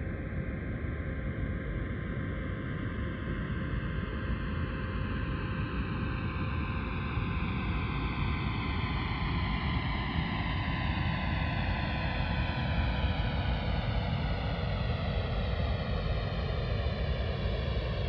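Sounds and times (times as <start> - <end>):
simulated jet aircraft flyover: 10.8 - 18.0.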